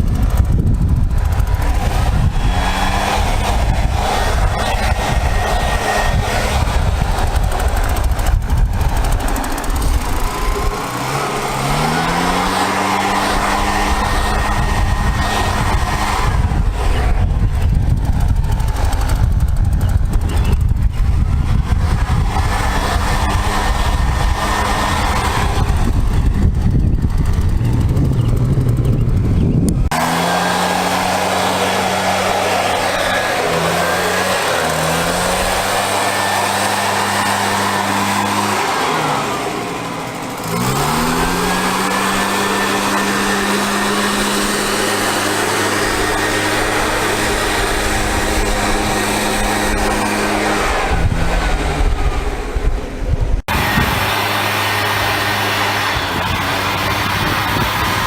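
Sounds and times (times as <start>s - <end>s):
engine running: 0.0s - 58.0s
low rumble: 13.4s - 30.0s.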